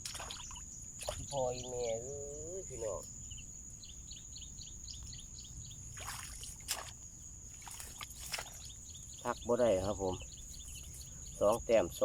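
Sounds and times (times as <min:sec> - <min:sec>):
splashy rustling noises: 0:00.0 - 0:01.3, 0:05.9 - 0:08.8
insects buzzing and chirping: 0:00.0 - 0:12.0.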